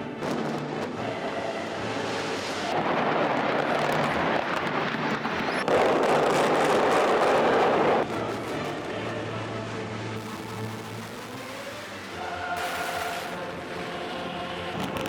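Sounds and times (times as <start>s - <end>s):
building collapse roar: 0.0s - 9.4s.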